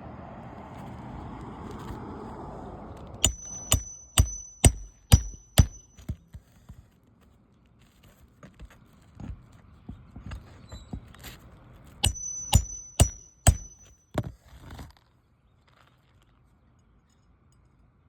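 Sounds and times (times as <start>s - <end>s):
hammer blows ringing: 3.2s - 6.2s, 12.0s - 13.9s
hammer tapping nail: 3.2s - 6.2s, 12.0s - 13.9s.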